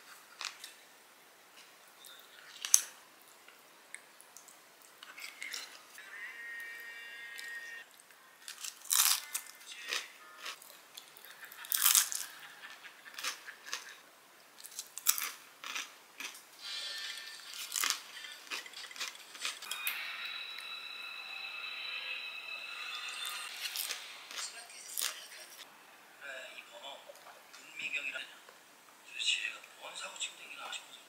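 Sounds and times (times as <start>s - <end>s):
crunchy bites and chewing: 8.4s - 14.0s, 14.6s - 16.4s.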